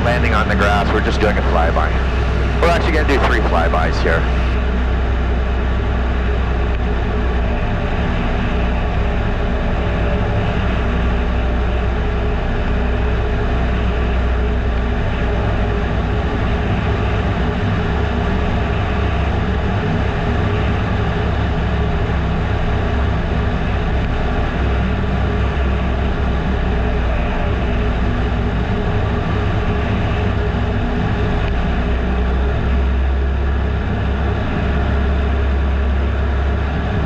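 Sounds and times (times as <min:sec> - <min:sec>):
airflow noise: 0:00.0 - 0:04.6
light aircraft engine droning: 0:00.0 - 0:37.0.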